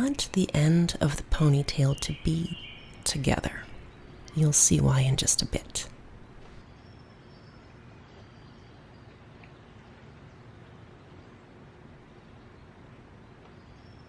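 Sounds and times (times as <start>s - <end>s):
distant birds calling: 0.0s - 6.6s.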